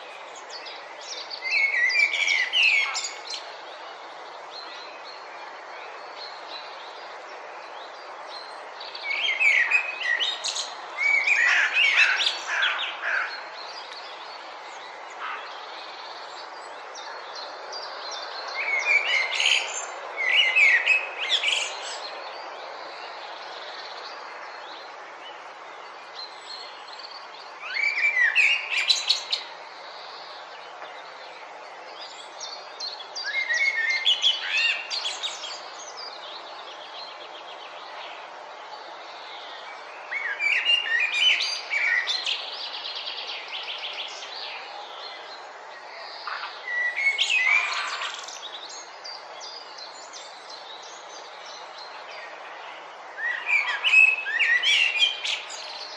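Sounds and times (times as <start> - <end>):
steady outdoor hiss: 0.0 - 55.9
songbird singing trills: 39.2 - 55.9.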